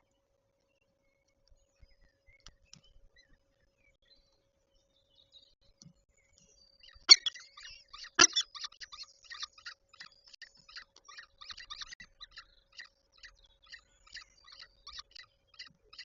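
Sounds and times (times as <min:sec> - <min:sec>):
falcon short high chirps: 0:07.1 - 0:07.4, 0:08.2 - 0:08.6.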